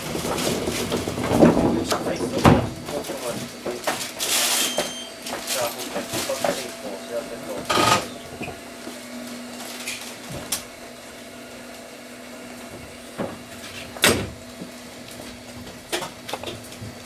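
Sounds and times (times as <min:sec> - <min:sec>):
knocks and rattles: 0:00.0 - 0:06.8
train interior hum: 0:00.0 - 0:17.0.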